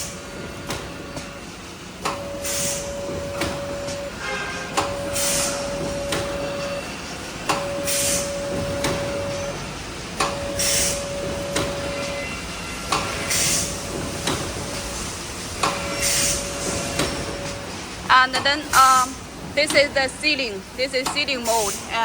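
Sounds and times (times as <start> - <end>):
machine hum tone: 0.0 - 14.8, 15.5 - 21.4
machine hiss: 2.2 - 3.6, 4.8 - 5.8, 6.5 - 18.2.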